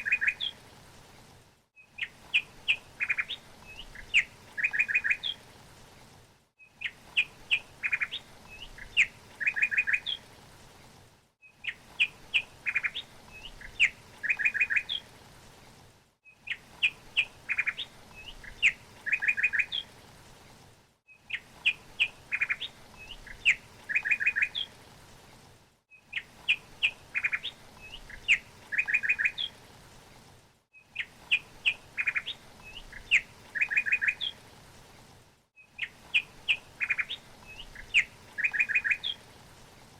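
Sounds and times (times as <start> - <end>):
songbird chirping and trilling: 0.0 - 0.6, 1.8 - 5.4, 6.6 - 10.2, 11.4 - 15.1, 16.3 - 19.9, 21.1 - 24.7, 26.0 - 29.6, 30.8 - 34.4, 35.6 - 39.2
faint steady hiss: 0.0 - 39.9.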